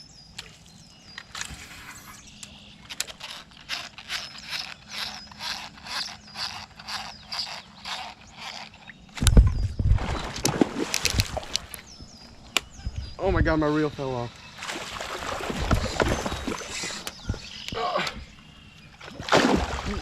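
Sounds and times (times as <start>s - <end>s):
fishing reel cranking: 1.7s - 9.3s.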